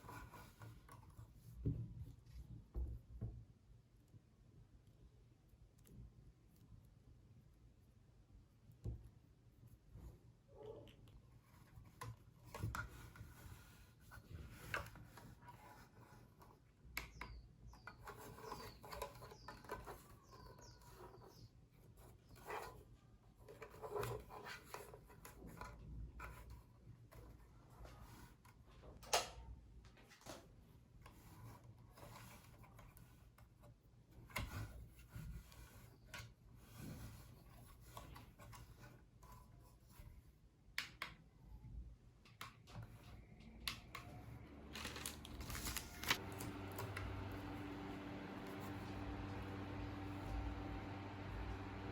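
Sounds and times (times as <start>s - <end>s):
soft rubbing and scraping: 11.3s - 16.6s
low steady hum: 42.9s - 51.9s.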